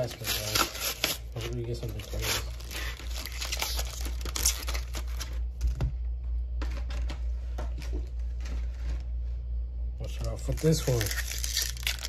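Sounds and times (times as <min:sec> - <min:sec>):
foil wrapper tearing and crinkling: 0:00.0 - 0:05.5, 0:10.3 - 0:12.0.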